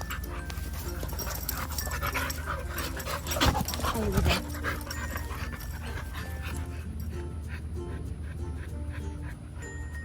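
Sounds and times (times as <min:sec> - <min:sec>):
dogs scuffling: 0:00.0 - 0:06.6
dogs panting: 0:00.0 - 0:10.0.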